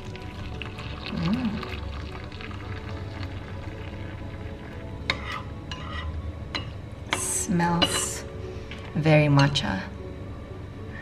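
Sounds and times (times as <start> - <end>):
drink stirred in cup: 0.0 - 5.5.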